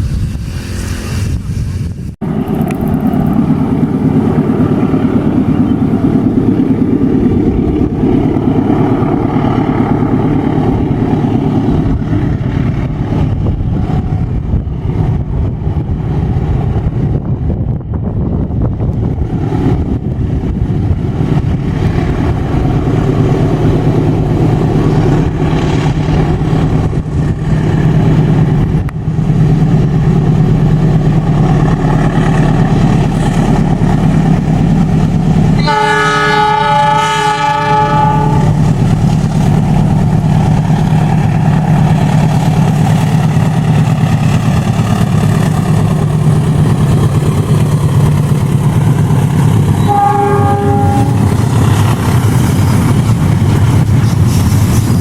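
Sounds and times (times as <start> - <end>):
diesel locomotive rumbling: 0.0 - 55.0
locomotive air horn: 35.6 - 38.6, 49.8 - 51.2.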